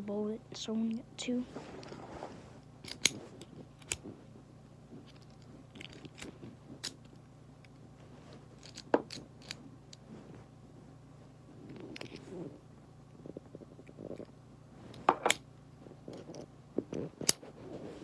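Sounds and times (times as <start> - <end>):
small parts and packaging clicking: 2.8 - 4.0, 5.0 - 7.8, 8.6 - 10.0, 11.7 - 12.2.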